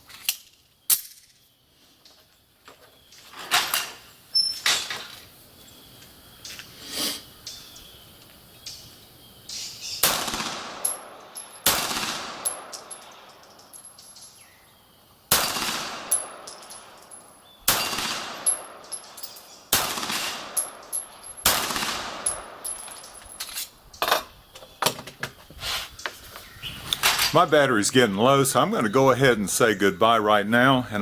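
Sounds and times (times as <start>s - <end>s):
pistol shots echoing: 10.0s - 13.4s, 15.3s - 23.2s.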